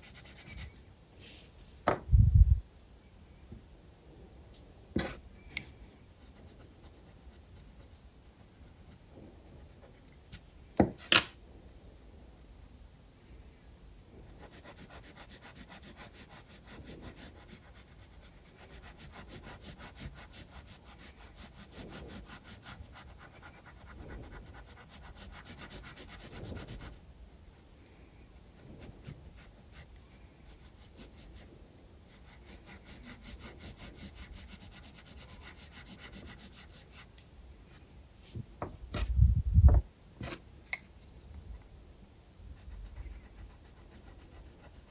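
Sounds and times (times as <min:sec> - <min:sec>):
pencil shading on paper: 0:14.3 - 0:27.6, 0:28.5 - 0:31.5, 0:32.1 - 0:37.1.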